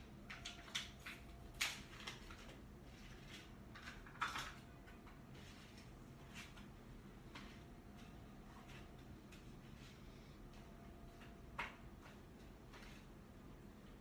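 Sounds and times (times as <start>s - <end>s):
kitchen items clicking and knocking: 0.0s - 5.3s.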